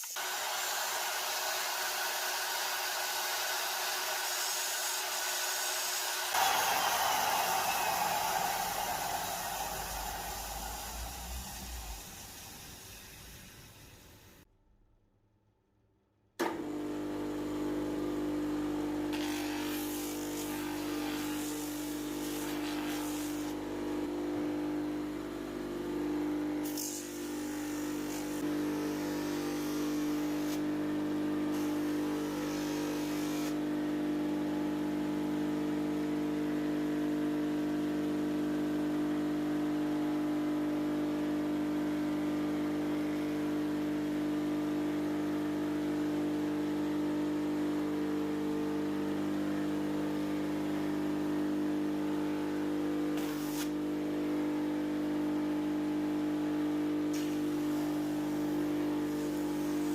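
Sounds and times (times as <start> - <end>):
electric grinder running: 0.0 - 13.9, 26.2 - 33.6
grinder grinding steel: 6.4 - 13.2, 26.6 - 30.8.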